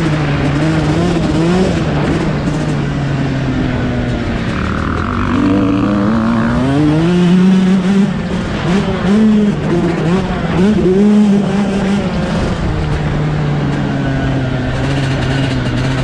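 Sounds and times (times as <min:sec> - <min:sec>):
dirt bike engine revving: 0:03.6 - 0:13.0.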